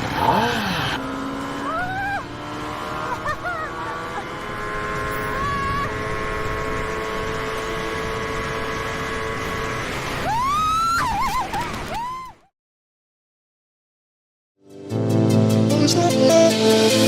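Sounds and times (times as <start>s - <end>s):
motorcycle engine revving: 0.0s - 10.3s.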